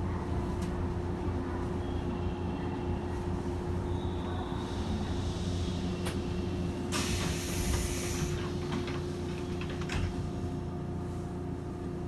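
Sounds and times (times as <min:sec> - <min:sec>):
electric train hum and rumble: 0:00.0 - 0:12.0
compressed-air hiss: 0:06.9 - 0:08.6.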